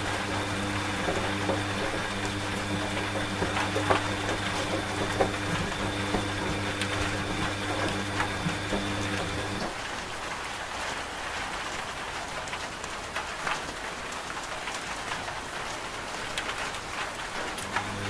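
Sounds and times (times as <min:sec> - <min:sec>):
washing machine clicks and knocks: 0:00.0 - 0:09.8
washing machine motor hum: 0:00.0 - 0:09.9, 0:17.3 - 0:18.0.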